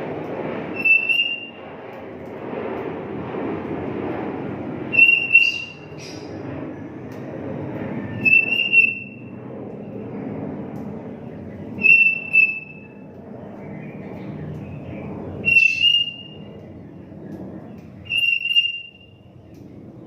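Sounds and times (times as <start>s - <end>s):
low rumble: 0.0s - 18.2s
bird whistling two-note phrases: 15.5s - 16.4s.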